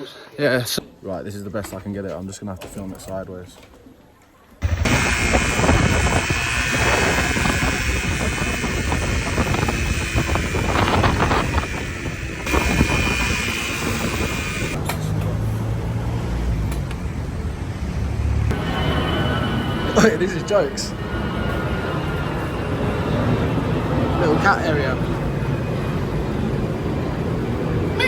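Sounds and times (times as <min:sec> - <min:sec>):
dirt bike engine: 0:04.6 - 0:14.8
wind rush on microphone: 0:04.6 - 0:14.8.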